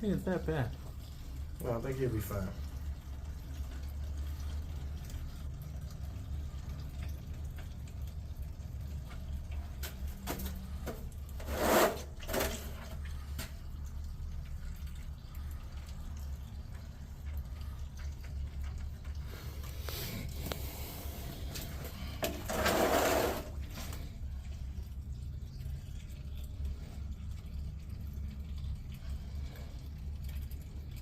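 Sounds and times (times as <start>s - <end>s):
steady low hum: 12.3s - 31.0s.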